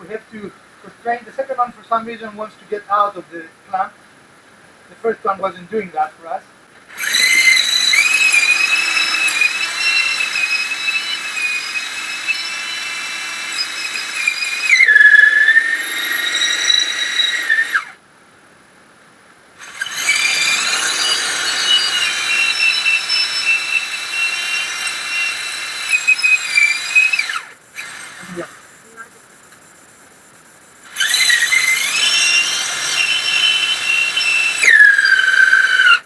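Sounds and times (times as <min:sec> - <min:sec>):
power tool cutting wood: 0:06.9 - 0:18.0, 0:19.6 - 0:29.2, 0:30.8 - 0:36.0.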